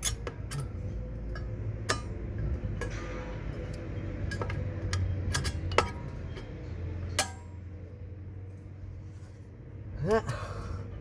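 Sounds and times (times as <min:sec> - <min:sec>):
hand tools clinking on metal: 0:00.0 - 0:07.4
low steady hum: 0:00.0 - 0:11.0.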